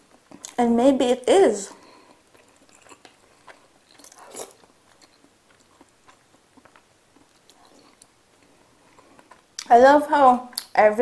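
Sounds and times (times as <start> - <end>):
person chewing: 0.0 - 0.6, 1.8 - 9.7.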